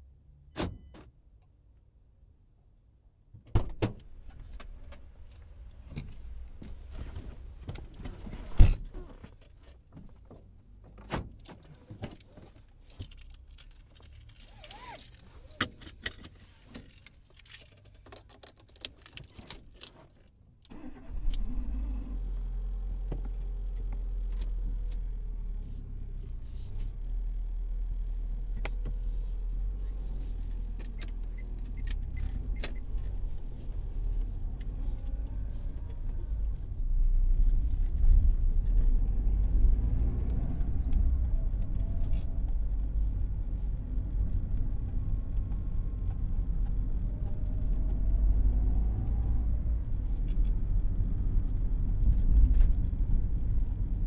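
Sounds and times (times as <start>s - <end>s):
clicks and rustles in car: 3.4s - 20.5s
car engine starting and idling: 20.5s - 54.0s.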